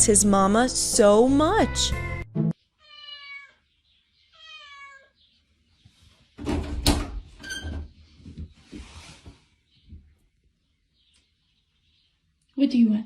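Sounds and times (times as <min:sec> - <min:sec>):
cat meowing: 0:02.8 - 0:03.6, 0:04.3 - 0:05.2
rustling: 0:08.0 - 0:09.6.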